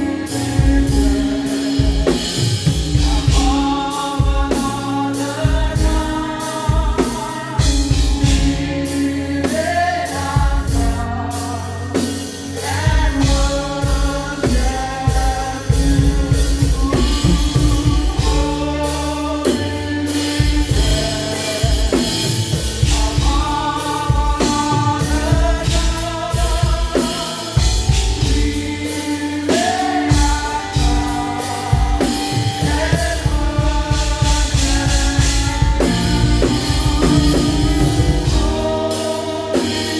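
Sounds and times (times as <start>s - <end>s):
drum kit and band: 0.0s - 39.9s
voices singing: 0.0s - 39.9s.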